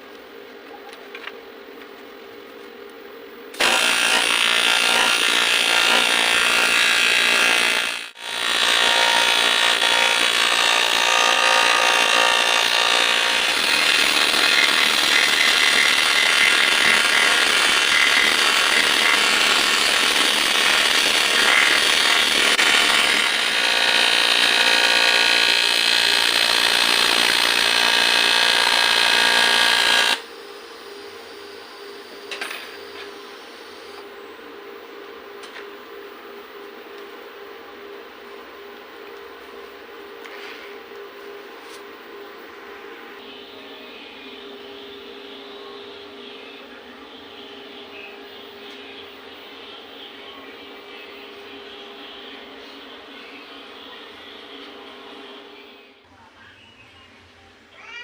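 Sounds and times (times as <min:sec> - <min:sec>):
handheld power tool running: 0:03.6 - 0:30.3.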